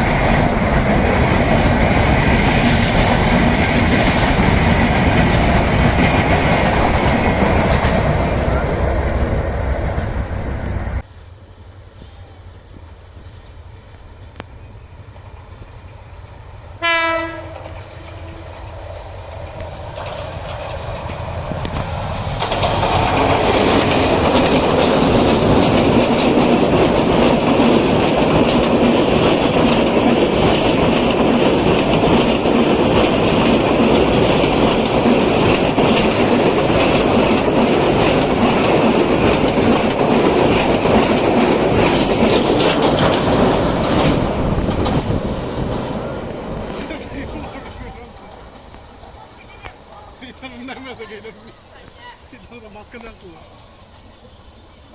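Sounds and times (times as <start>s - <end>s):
train coaches rolling past: 0.0s - 54.9s
train horn blast: 16.8s - 18.6s
wheels clattering over rail joints: 19.4s - 48.8s.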